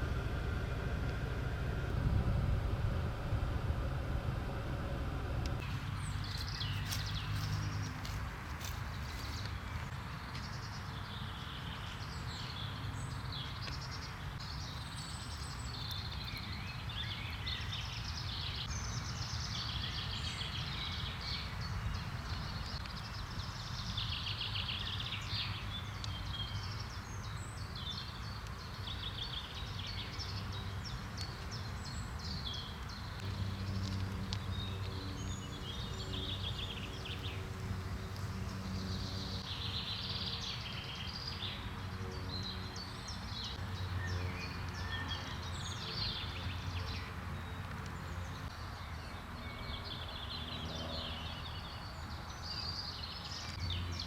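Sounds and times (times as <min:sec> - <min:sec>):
low background rumble: 0:00.0 - 0:06.6
birds singing and chirping: 0:05.5 - 0:54.0.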